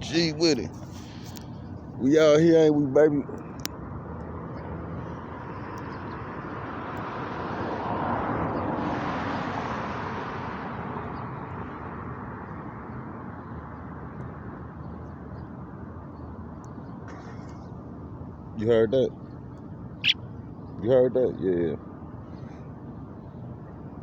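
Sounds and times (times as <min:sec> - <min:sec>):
car passing by: 0:06.6 - 0:11.2.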